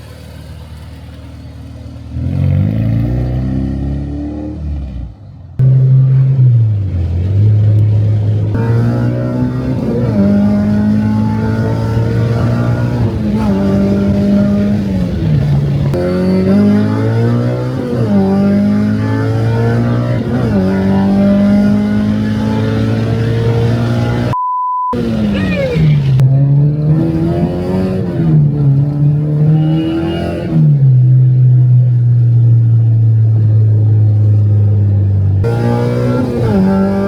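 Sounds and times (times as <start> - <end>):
car engine revving under load: 0.0 - 24.4, 25.0 - 37.0
beep: 24.4 - 25.8.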